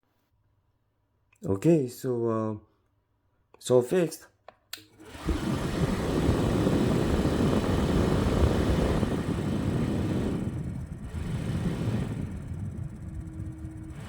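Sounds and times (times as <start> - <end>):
fan blowing air: 5.0 - 14.0.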